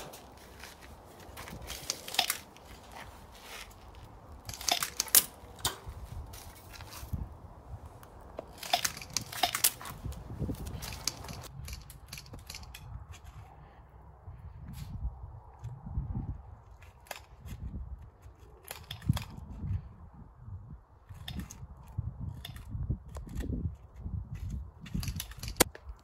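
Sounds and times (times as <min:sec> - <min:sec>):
leaves and twigs crunching underfoot: 0:00.0 - 0:11.6.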